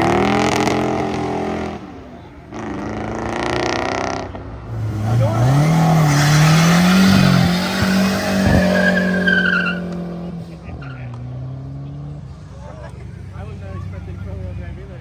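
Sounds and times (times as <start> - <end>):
car engine revving: 0.0 - 15.0
tyres squealing in a burnout: 4.7 - 11.5.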